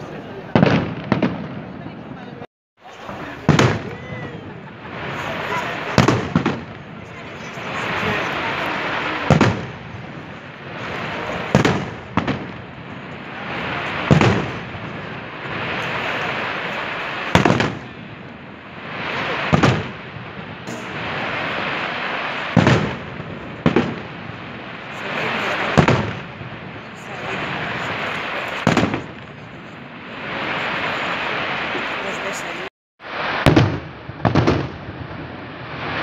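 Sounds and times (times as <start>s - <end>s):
fireworks shells bursting: 4.9s - 33.8s
steady rushing noise: 9.8s - 33.4s.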